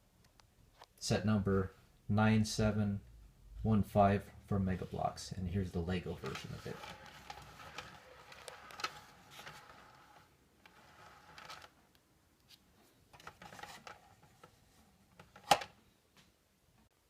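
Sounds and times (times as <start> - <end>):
rubbing and scraping handling noise: 3.6 - 15.8.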